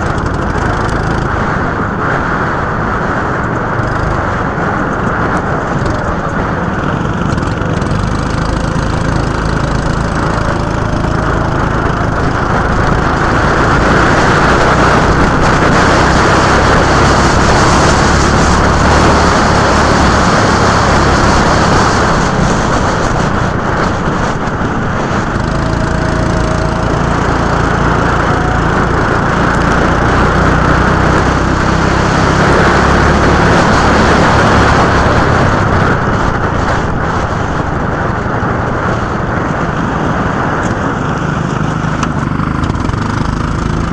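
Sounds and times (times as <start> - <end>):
go-kart engine running: 0.0 - 43.9.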